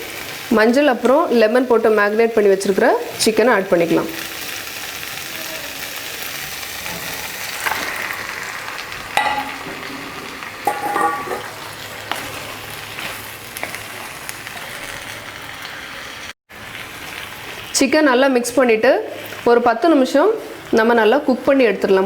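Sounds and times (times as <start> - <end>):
chicken sizzling in hot oil: 0.0 - 22.0
spatula knocking against pan: 9.2 - 9.9, 10.7 - 11.6.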